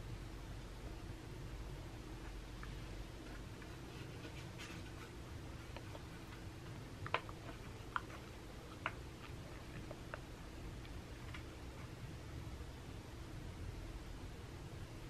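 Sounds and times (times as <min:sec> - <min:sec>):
low room hum: 0:00.0 - 0:15.0
faint rustling: 0:02.2 - 0:12.0.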